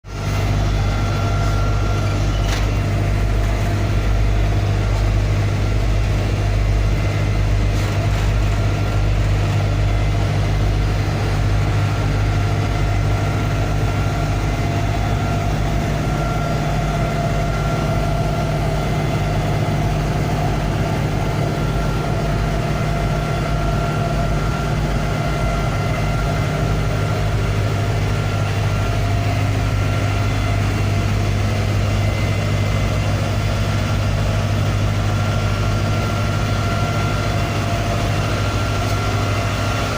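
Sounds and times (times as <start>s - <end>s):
ferry engines humming: 0.0s - 39.9s.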